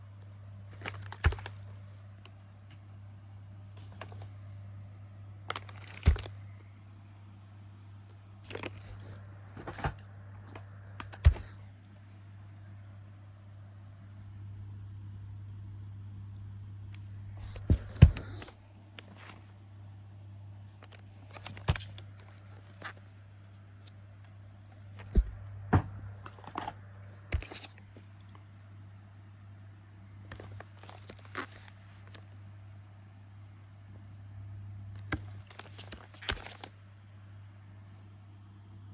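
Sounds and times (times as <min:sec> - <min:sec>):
steady low hum: 0:00.0 - 0:38.9
cardboard and wrapping rustling: 0:00.7 - 0:02.0, 0:05.5 - 0:06.5, 0:08.4 - 0:11.6, 0:17.3 - 0:19.5, 0:20.7 - 0:23.0, 0:24.6 - 0:25.4, 0:26.2 - 0:28.1, 0:30.3 - 0:32.3, 0:35.0 - 0:36.7.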